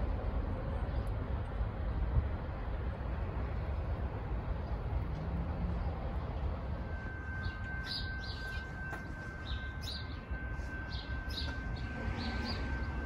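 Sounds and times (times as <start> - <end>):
faint high-pitched tone: 5.6 - 13.0.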